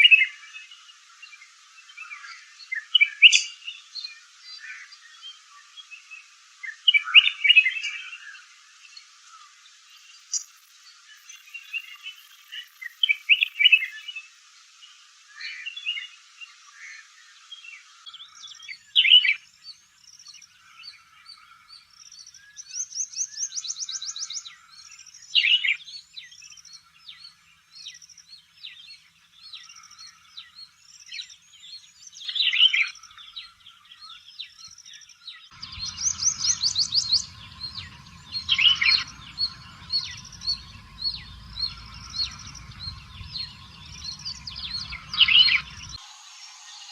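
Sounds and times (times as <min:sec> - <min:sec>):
loud sharp bird calls: 0:35.5 - 0:46.0
fast high bird trills: 0:35.6 - 0:46.0
low rumble: 0:35.6 - 0:46.6
short high bird chirps: 0:35.6 - 0:46.9.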